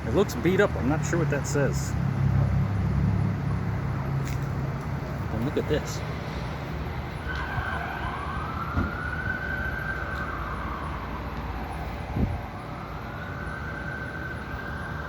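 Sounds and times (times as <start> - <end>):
low rumble of street traffic: 0.0 - 15.0
emergency vehicle siren wailing: 4.9 - 15.0.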